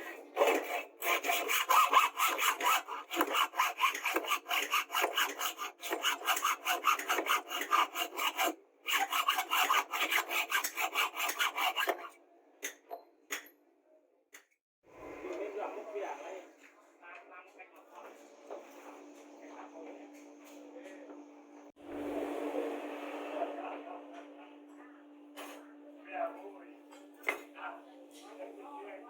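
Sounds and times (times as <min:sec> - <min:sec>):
hand tool scraping: 0:00.0 - 0:12.1.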